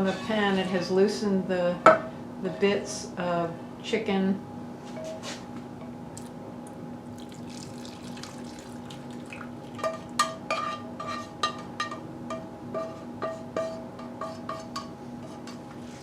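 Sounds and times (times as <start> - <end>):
steady hum: 0.0 - 16.0
water bubbling in a frying pan: 7.0 - 10.3
utensil clinking on cookware: 9.7 - 15.6.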